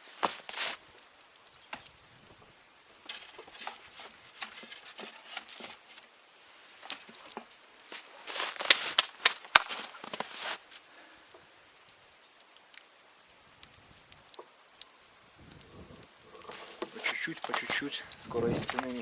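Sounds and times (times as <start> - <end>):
objects rustling and knocking: 3.0 - 10.8.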